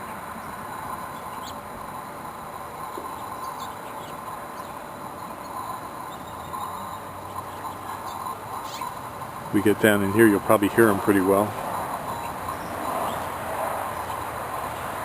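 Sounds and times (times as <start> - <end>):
bees humming: 0.0 - 15.0
bird chirps: 1.1 - 1.6, 2.9 - 9.0, 10.2 - 14.9.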